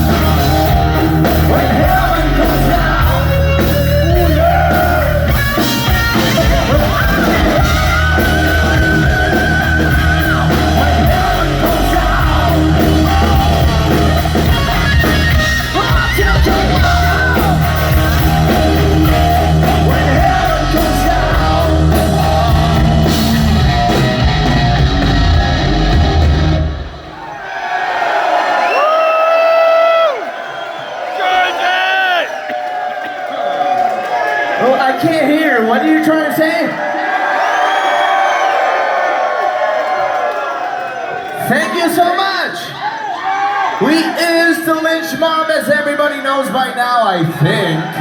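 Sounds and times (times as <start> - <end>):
person singing: 0.0 - 24.3
live hard rock band: 0.0 - 27.2.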